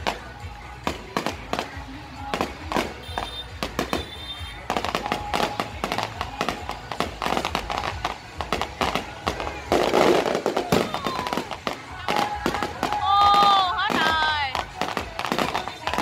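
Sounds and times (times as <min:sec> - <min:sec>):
fireworks crackling: 0:00.0 - 0:16.0.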